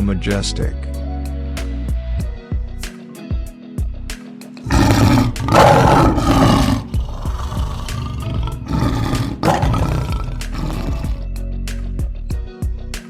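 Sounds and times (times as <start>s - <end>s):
soft background music: 0.0s - 13.0s
lion roaring: 4.7s - 11.2s.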